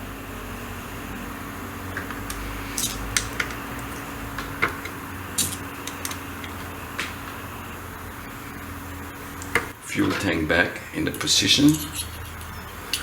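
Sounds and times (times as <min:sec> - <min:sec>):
steady background hum: 0:00.0 - 0:13.0
metal tools clicking and clinking: 0:02.3 - 0:06.7, 0:11.1 - 0:13.0.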